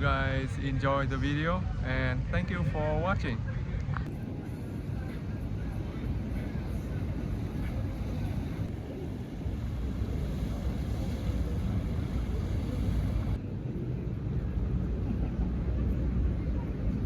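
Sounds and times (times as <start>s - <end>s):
boat engine rumble: 0.0s - 17.0s
wind buffeting microphone: 0.0s - 17.0s
high hiss: 6.6s - 13.4s.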